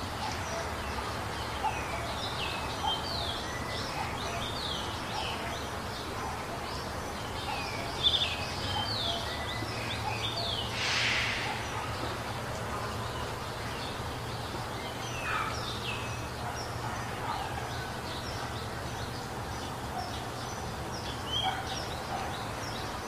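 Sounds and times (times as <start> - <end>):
birds chirping: 0.0 - 23.0
hissing rush of noise: 10.4 - 14.3.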